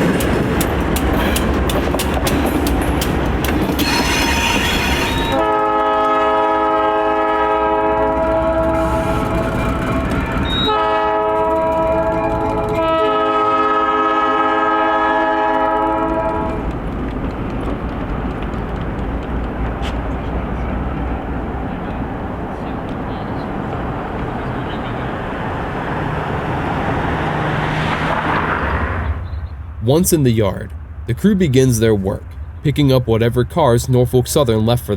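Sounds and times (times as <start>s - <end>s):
wheels squealing: 0.0s - 5.5s, 8.6s - 10.8s
wheels clicking on rail joints: 0.0s - 14.2s, 15.3s - 26.2s
train rumbling: 0.0s - 34.9s
locomotive chord horn blasts: 3.8s - 9.5s, 10.4s - 16.6s.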